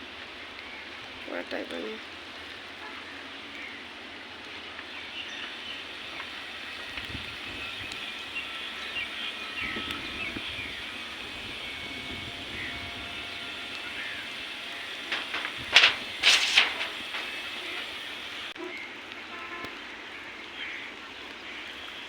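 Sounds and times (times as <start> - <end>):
light rain hissing: 0.0 - 18.6
loud rushing bursts: 13.3 - 18.5.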